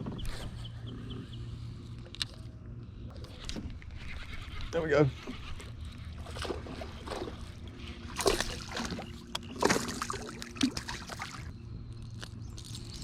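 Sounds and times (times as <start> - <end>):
water splashing and sloshing: 3.4 - 11.5.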